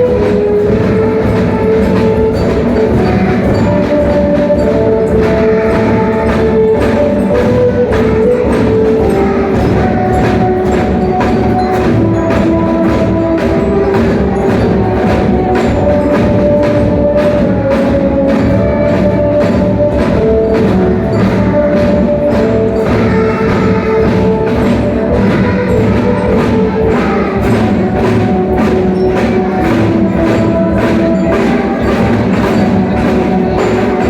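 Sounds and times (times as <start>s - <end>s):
drum band playing: 0.0s - 34.0s.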